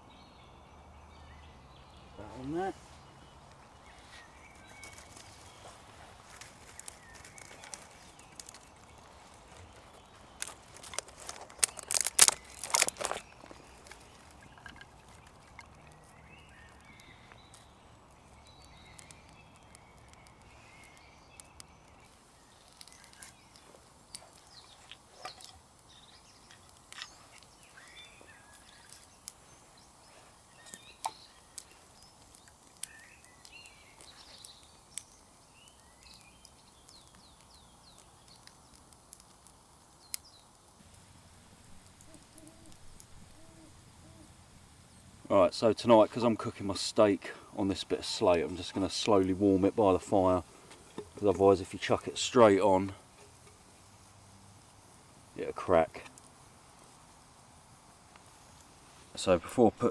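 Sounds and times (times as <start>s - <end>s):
campfire crackling and popping: 1.8s - 59.9s
faint bird calls: 41.9s - 44.4s.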